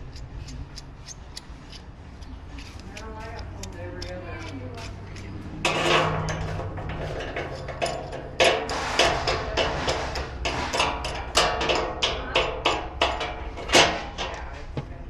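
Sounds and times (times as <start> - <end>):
grill parts scraping: 0.0 - 14.8
metal knocks and clanks: 4.4 - 15.0.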